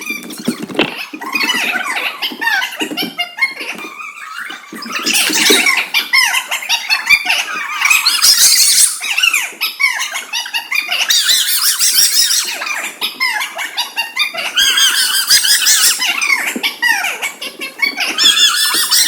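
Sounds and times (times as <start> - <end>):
children shouting and squealing: 0.0 - 19.0.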